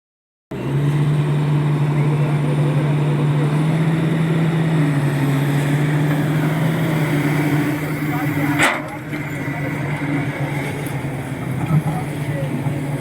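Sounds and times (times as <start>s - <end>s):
excavator diesel engine running: 0.5s - 13.0s.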